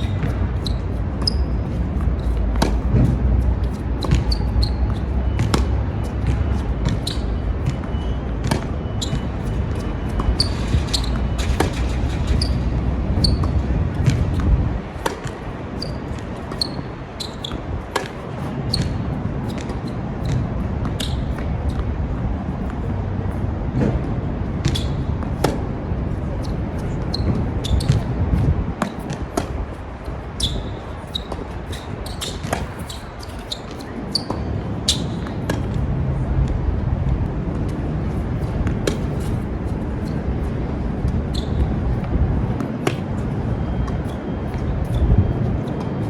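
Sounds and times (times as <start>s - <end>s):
racket hitting tennis ball: 0.0s - 21.8s, 23.8s - 25.7s, 26.4s - 30.2s, 38.1s - 40.1s, 42.5s - 45.0s
tennis ball bouncing: 0.0s - 21.8s, 22.6s - 25.7s, 26.4s - 35.8s, 38.1s - 45.0s
wind rumbling on microphone: 0.0s - 46.0s.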